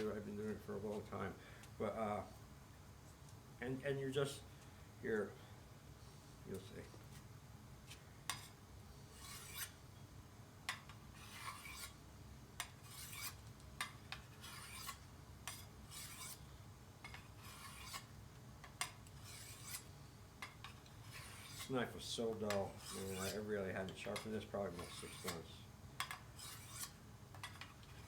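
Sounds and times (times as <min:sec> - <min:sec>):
knife scraping on sharpening stone: 0:09.1 - 0:09.8, 0:11.2 - 0:12.0, 0:12.8 - 0:13.4, 0:14.1 - 0:16.4, 0:17.1 - 0:18.1, 0:19.2 - 0:19.9, 0:20.6 - 0:21.7, 0:22.4 - 0:23.5, 0:24.1 - 0:28.0.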